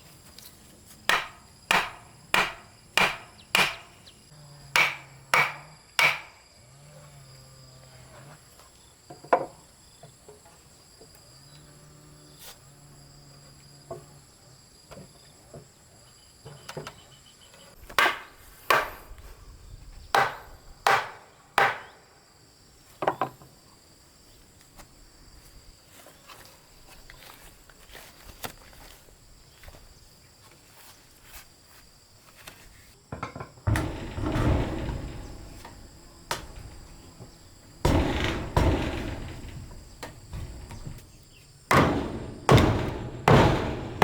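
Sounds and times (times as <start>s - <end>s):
insects trilling: 0.0s - 44.0s
hammer blows on timber: 1.1s - 4.0s, 4.7s - 6.4s, 41.7s - 44.0s.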